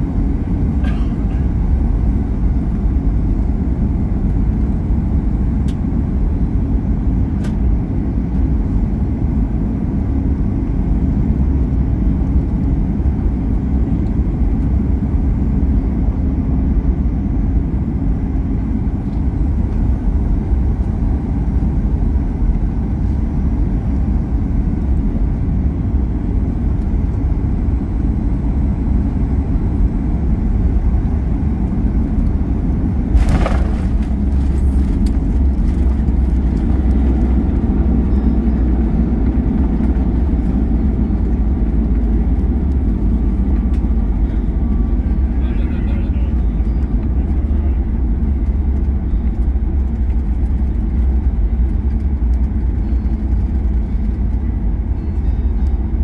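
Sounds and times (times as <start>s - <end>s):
aircraft cabin engine rumble: 0.0s - 56.0s.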